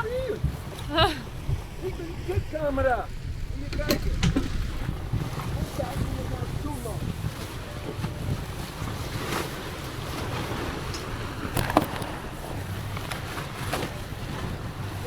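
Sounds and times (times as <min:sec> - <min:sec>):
water washing around boat: 0:00.0 - 0:15.0
wind buffeting microphone: 0:00.0 - 0:15.0
sharp knocks: 0:03.1 - 0:05.6.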